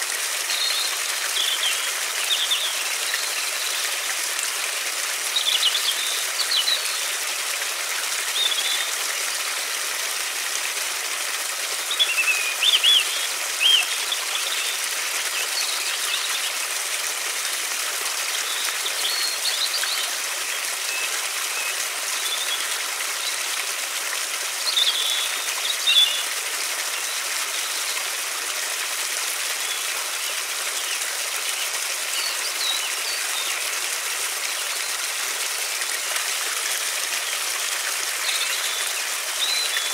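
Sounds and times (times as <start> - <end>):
river water flowing: 0.0 - 39.9
small birds chirping: 29.6 - 33.7.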